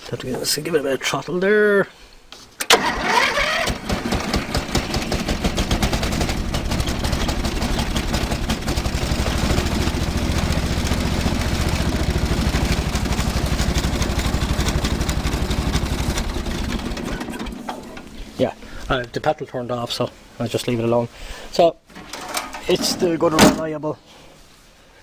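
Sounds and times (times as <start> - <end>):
ride-on mower engine running: 2.7 - 18.4.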